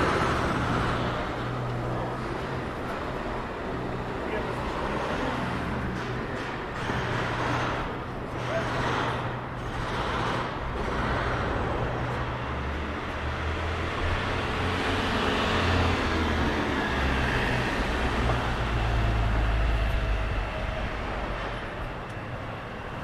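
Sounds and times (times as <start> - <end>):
passing motor vehicles: 0.0 - 23.0.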